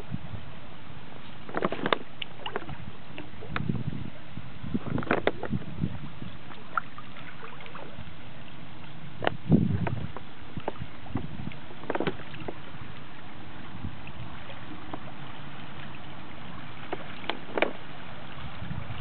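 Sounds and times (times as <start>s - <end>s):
paddle splashes: 1.2s - 19.0s
river water rushing: 10.1s - 19.0s.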